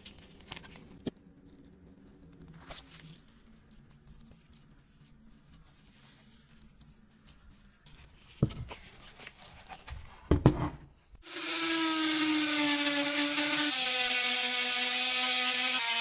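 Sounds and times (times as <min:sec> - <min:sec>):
power tool running: 0:11.3 - 0:16.0.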